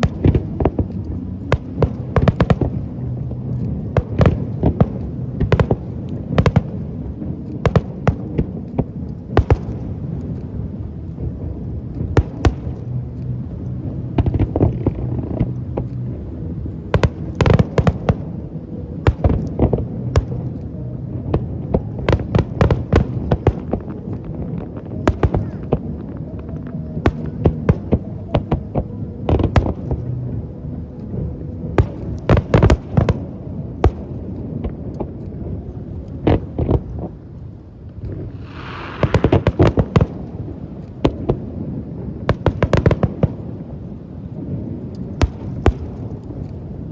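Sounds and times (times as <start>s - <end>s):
continuous low rumble: 0.0s - 46.9s
hissing crackle of fireworks: 0.0s - 46.9s
firework shells bursting: 38.0s - 40.3s.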